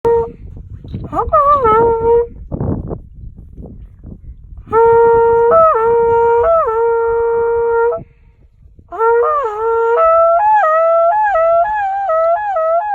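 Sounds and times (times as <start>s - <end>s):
breath: 8.0s - 8.6s.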